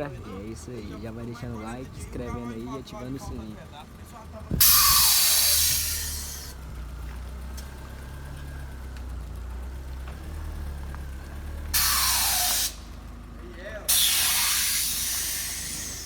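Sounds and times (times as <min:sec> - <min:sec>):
air suspension hissing: 0:00.0 - 0:07.8, 0:11.6 - 0:13.2, 0:13.8 - 0:16.0
engine idling: 0:00.0 - 0:16.0.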